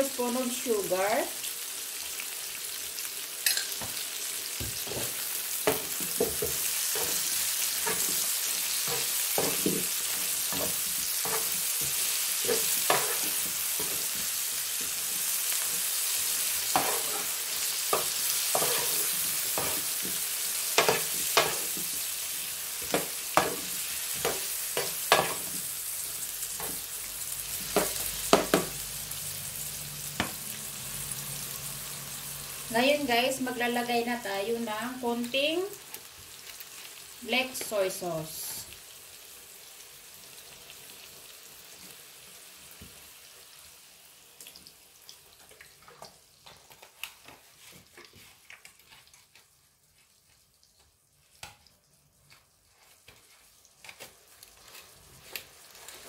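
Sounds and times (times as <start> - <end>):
food sizzling in oil: 0.0 - 56.0
spatula scraping and knocking pan: 4.6 - 22.1, 22.8 - 25.7, 27.5 - 28.8.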